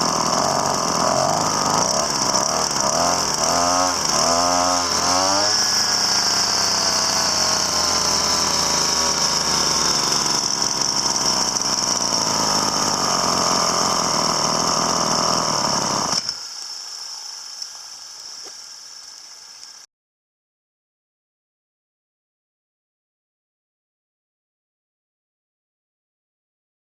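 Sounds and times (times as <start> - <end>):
small motor hissing and whining: 0.0 - 19.9.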